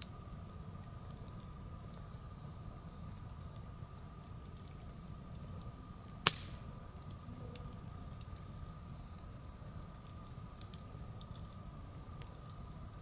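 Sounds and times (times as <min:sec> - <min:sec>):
wood bonfire crackling: 0:00.0 - 0:13.0
sharp loud pop: 0:06.3 - 0:06.6.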